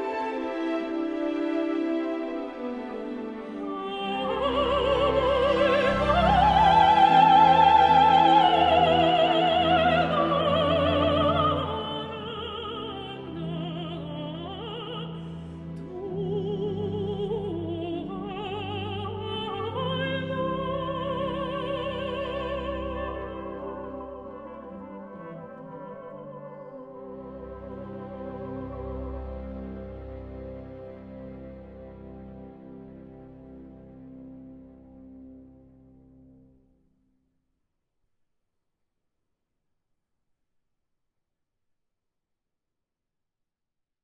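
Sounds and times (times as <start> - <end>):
orchestral accompaniment: 0.0 - 36.5
operatic woman singing: 3.4 - 29.2.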